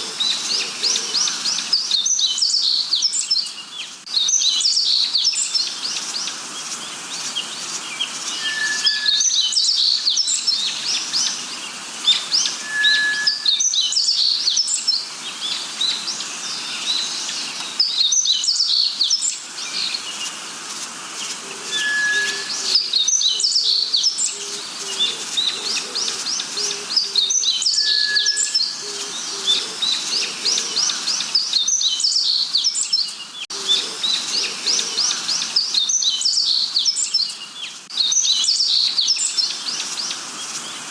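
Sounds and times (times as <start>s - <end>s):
birds chirping and singing: 0.0s - 40.9s
whistled bird notes: 7.9s - 11.4s, 12.1s - 15.0s, 21.6s - 24.4s, 26.6s - 33.1s
quick high bird chirps: 8.3s - 10.2s, 12.6s - 14.5s.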